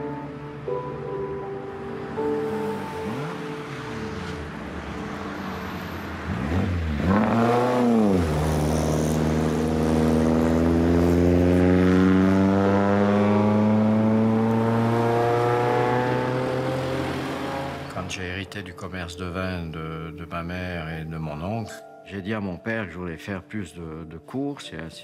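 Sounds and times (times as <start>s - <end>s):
sports car engine revving: 2.5s - 4.5s, 6.2s - 17.9s.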